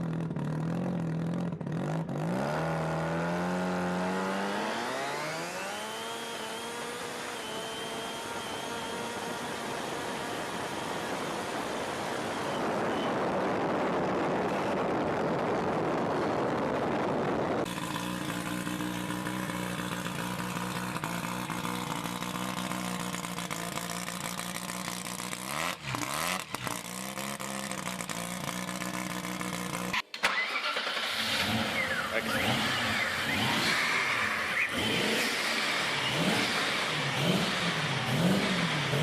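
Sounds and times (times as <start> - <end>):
engine revving up: 2.1 - 12.4, 29.4 - 39.0
car engine running: 17.1 - 30.0.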